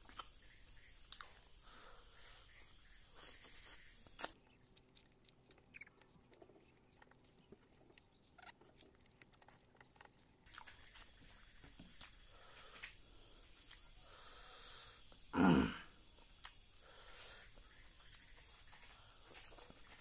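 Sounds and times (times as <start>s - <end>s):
wet chewing: 3.2s - 12.2s.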